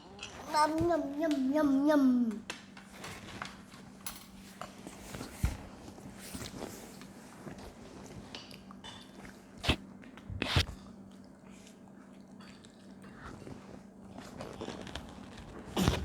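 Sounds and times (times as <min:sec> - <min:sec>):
quiet chewing: 0:06.3 - 0:16.0.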